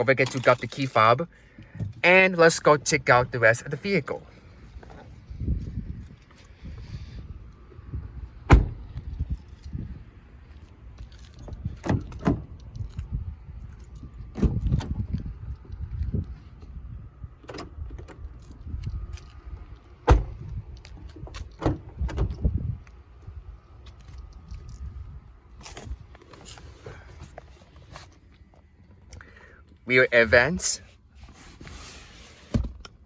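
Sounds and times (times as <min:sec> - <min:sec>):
keys jangling: 0:00.1 - 0:01.1
car doors clunking shut: 0:08.4 - 0:09.0, 0:11.5 - 0:12.6, 0:14.3 - 0:15.1, 0:20.0 - 0:20.5, 0:21.1 - 0:22.6.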